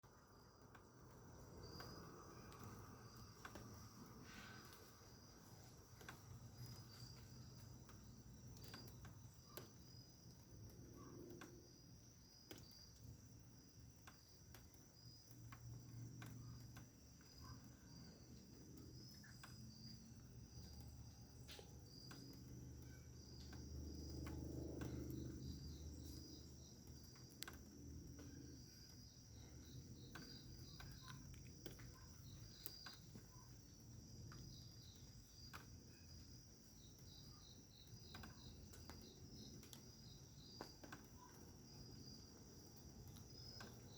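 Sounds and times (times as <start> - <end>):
crickets chirping: 0.0 - 43.9
faint clicks: 0.6 - 11.6, 13.9 - 33.6, 37.8 - 40.0.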